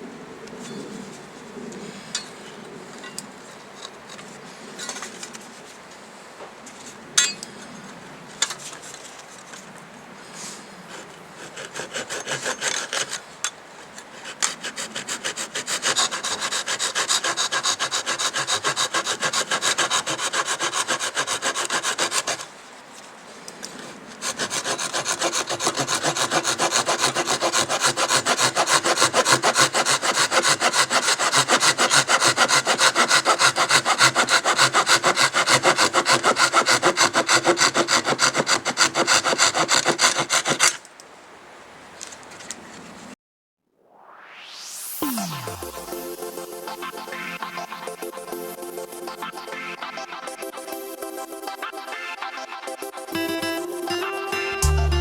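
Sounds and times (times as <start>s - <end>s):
saw cutting through wood: 10.9s - 22.6s, 23.8s - 40.8s, 44.9s - 55.0s.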